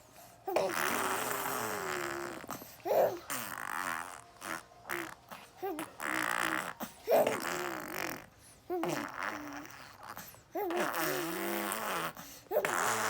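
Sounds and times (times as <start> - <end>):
baby blowing raspberries: 0.5 - 13.0.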